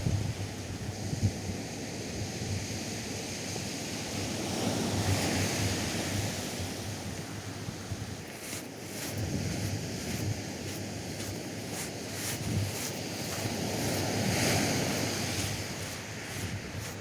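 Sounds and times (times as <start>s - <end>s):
wind rumbling on microphone: 5.1s - 17.0s
surf breaking on beach: 8.2s - 17.0s.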